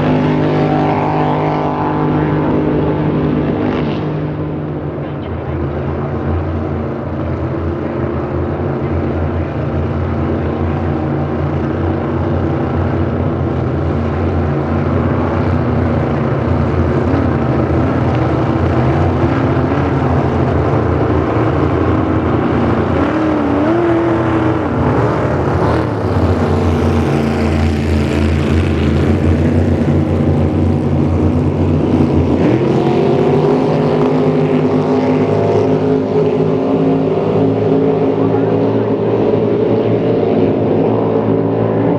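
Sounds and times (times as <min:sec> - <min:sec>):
boat engine running loudly: 0:00.0 - 0:41.9.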